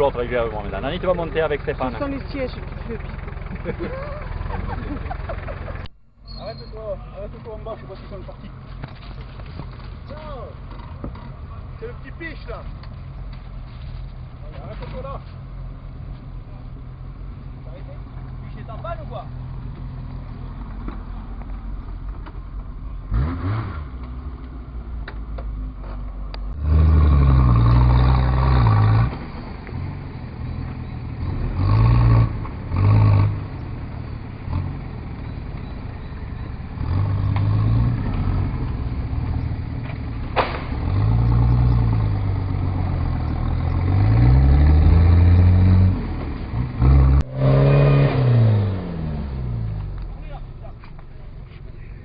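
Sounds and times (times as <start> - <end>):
engine revving: 23.0 - 24.5, 26.5 - 50.1.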